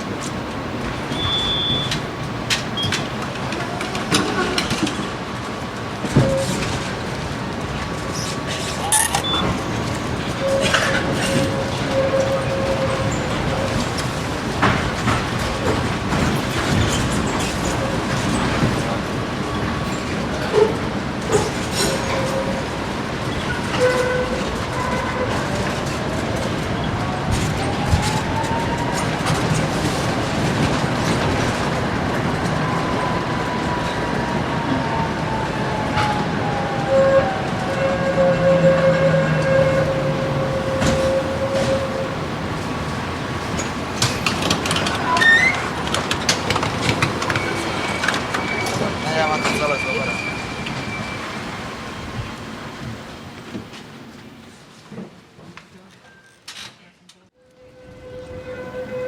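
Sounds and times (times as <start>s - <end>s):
tram rolling on rails: 0.0s - 59.0s
clatter of clicks and knocks: 1.1s - 5.2s, 43.6s - 48.8s
high squeaks: 39.4s - 42.2s, 43.5s - 51.5s.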